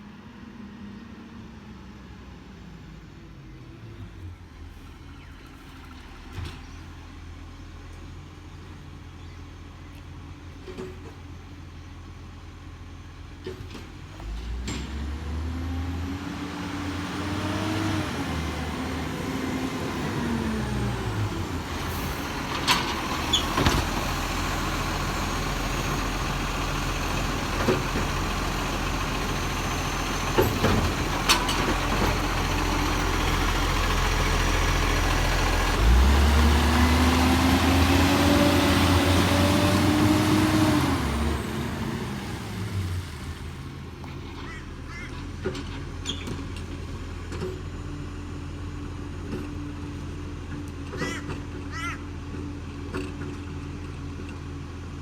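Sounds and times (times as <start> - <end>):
garbage truck engine revving: 14.1 - 50.1.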